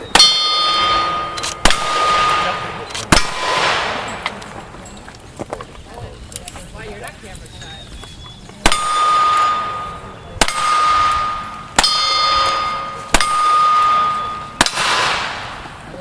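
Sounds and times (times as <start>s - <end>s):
gunshots: 0.0s - 4.6s, 8.6s - 15.8s
steel target ringing: 0.0s - 5.0s, 8.6s - 15.6s.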